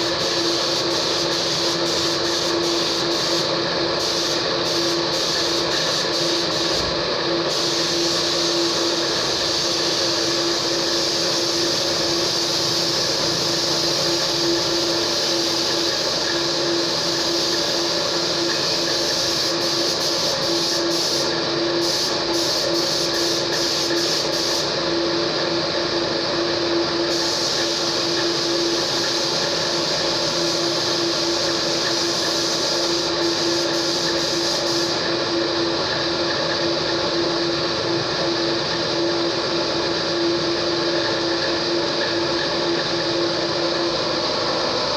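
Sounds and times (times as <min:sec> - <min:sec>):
steady machine hiss: 0:00.0 - 0:24.9, 0:27.0 - 0:35.2.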